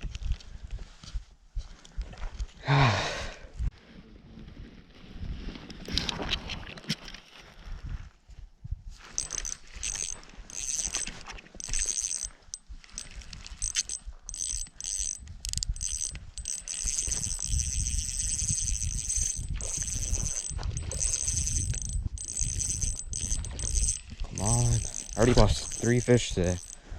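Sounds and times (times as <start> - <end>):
wind rumbling on microphone: 7.4 - 11.6, 12.6 - 26.9
fishing reel whirring: 9.2 - 26.9.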